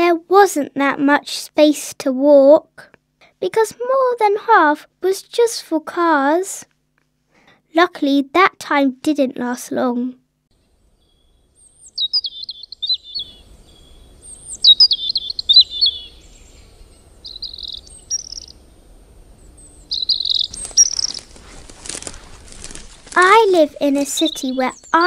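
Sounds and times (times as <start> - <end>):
songbird singing: 10.6 - 25.0
rustling noise: 20.5 - 24.3.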